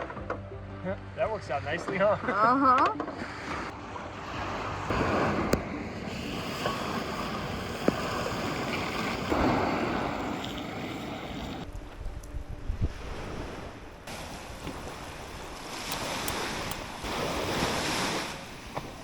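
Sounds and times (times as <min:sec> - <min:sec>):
waves washing on shore: 0:03.2 - 0:11.7, 0:12.7 - 0:19.0
wind buffeting microphone: 0:04.8 - 0:19.0.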